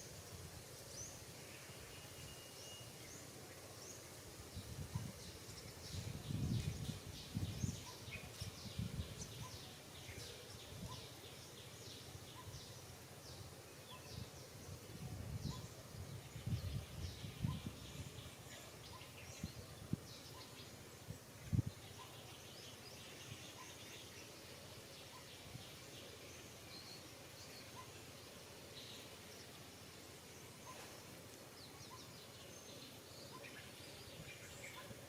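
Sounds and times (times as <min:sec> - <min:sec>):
small birds chirping: 0:00.7 - 0:35.0.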